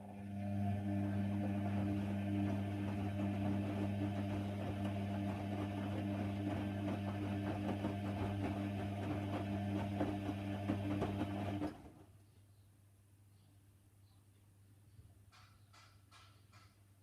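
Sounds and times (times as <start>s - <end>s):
washer dryer humming: 0.0s - 11.9s.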